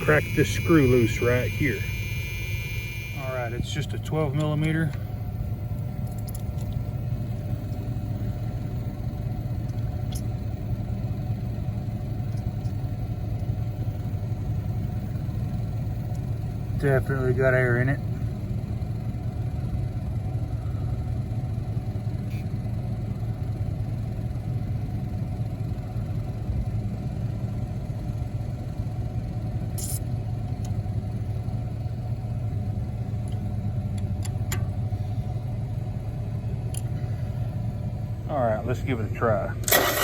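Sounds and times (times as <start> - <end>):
electric fuel pump humming: 0.0 - 12.8, 39.6 - 40.0.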